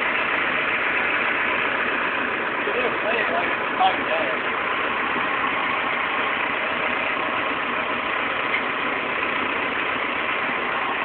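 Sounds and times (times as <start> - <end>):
backhoe engine idling: 0.0 - 11.0.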